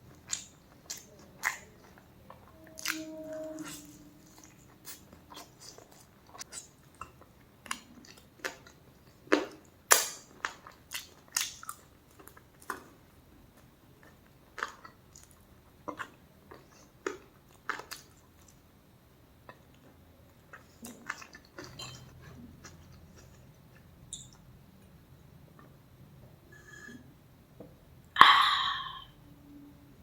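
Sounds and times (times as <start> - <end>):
chewing with crunching bites: 4.8 - 12.9, 13.5 - 18.6, 19.4 - 23.9.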